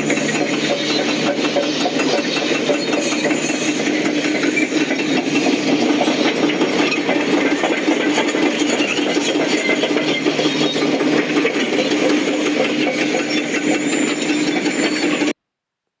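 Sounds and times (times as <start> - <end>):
bulldozer diesel engine: 0.0 - 15.4
rapid metallic clatter: 0.0 - 15.4.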